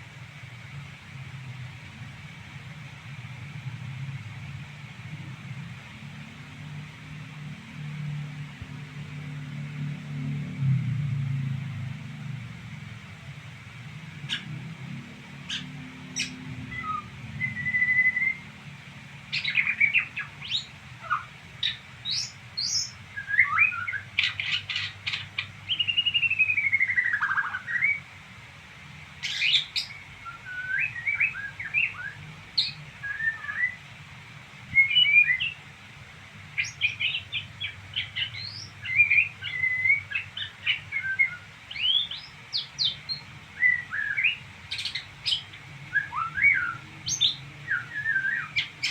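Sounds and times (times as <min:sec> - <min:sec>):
songbird twittering: 0:14.1 - 0:18.6, 0:19.3 - 0:28.0, 0:29.2 - 0:33.8, 0:34.7 - 0:35.6, 0:36.6 - 0:48.9.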